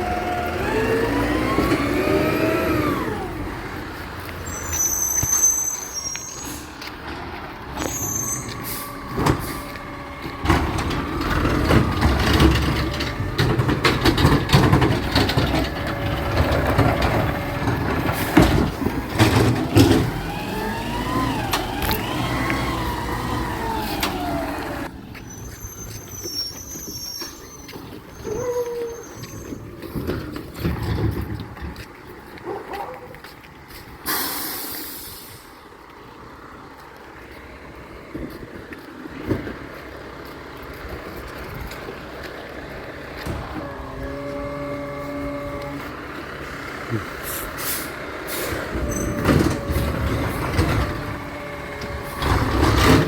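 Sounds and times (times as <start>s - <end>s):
hydraulic whines: 0.0s - 3.8s, 7.8s - 30.0s, 43.2s - 46.2s, 46.8s - 53.0s
air brakes hissing: 2.6s - 6.8s, 7.8s - 11.4s, 18.0s - 18.7s, 33.8s - 35.6s, 47.0s - 50.6s
metal clanks and knocks: 10.2s - 20.3s.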